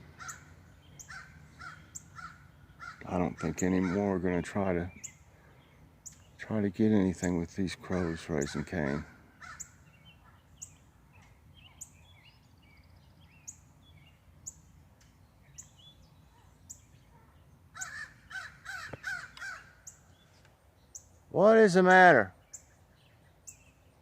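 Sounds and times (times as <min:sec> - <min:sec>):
crows cawing: 0:00.1 - 0:04.2, 0:07.8 - 0:09.8, 0:17.7 - 0:20.0
faint high chirp: 0:10.1 - 0:17.5.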